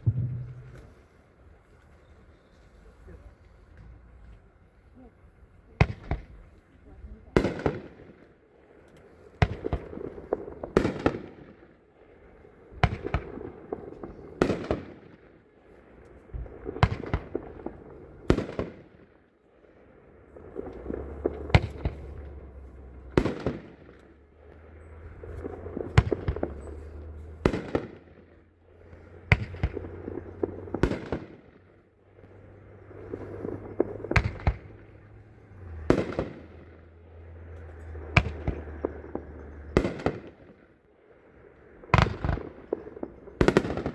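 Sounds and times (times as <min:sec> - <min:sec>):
fireworks firing: 0:00.0 - 0:01.3, 0:05.7 - 0:08.3, 0:09.0 - 0:11.8, 0:12.7 - 0:15.4, 0:16.1 - 0:19.2, 0:20.3 - 0:40.8, 0:41.8 - 0:43.9
low steady hum: 0:00.0 - 0:05.8.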